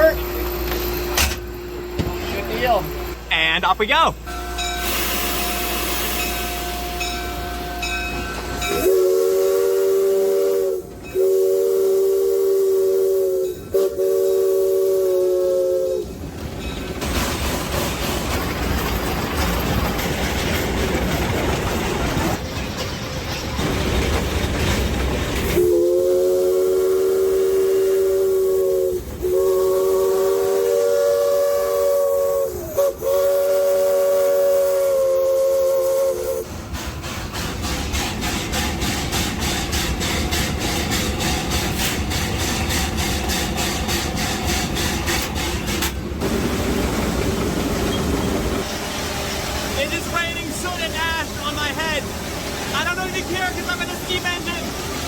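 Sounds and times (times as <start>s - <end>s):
steam locomotive running: 0.0s - 55.0s
steam whistle blasts: 4.3s - 8.0s, 8.6s - 16.1s, 25.6s - 36.5s.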